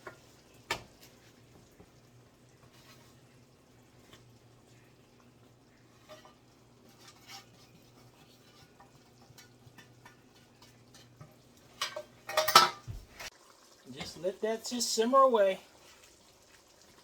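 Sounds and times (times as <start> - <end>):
food simmering with pops: 0.0 - 17.0
cookware clattering against pan: 6.0 - 13.3.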